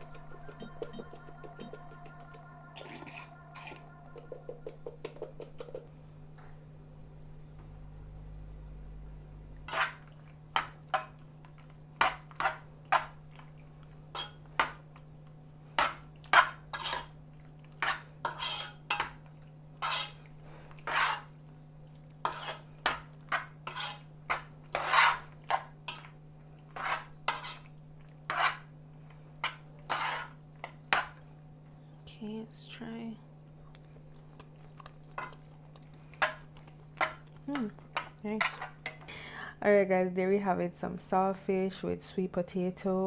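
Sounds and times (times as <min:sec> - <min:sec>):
utensil stirring and scraping dish: 0:02.8 - 0:05.8, 0:09.7 - 0:13.2, 0:14.1 - 0:14.9, 0:15.8 - 0:19.2, 0:19.8 - 0:21.4, 0:22.2 - 0:28.7, 0:29.4 - 0:31.2, 0:38.0 - 0:39.1.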